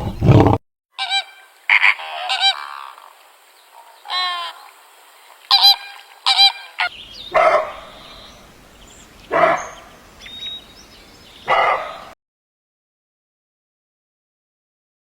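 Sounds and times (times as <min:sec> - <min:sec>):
honking bird calls: 0:01.0 - 0:03.1, 0:05.5 - 0:12.1.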